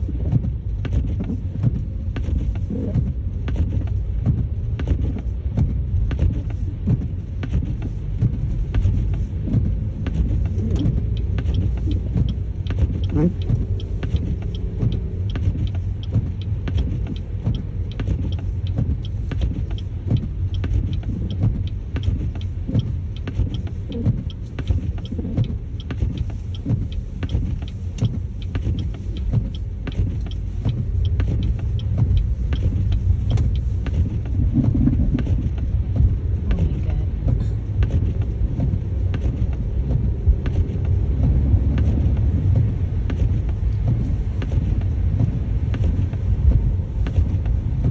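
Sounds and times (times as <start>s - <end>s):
car road rumble: 0.0s - 47.9s
small irregular clicks: 0.0s - 47.9s.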